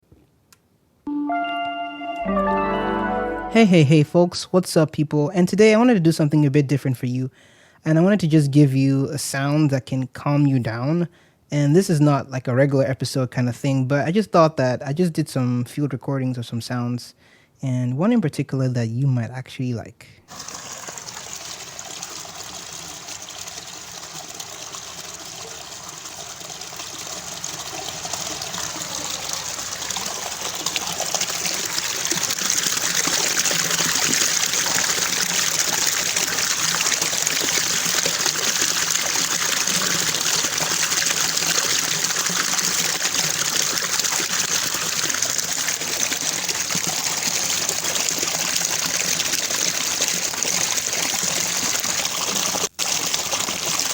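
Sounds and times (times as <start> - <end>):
rushing water: 20.3 - 53.9.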